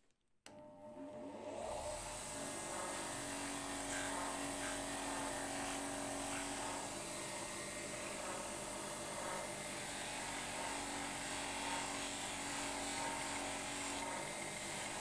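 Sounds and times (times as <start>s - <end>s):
small electric motor whirring: 9.0s - 15.0s.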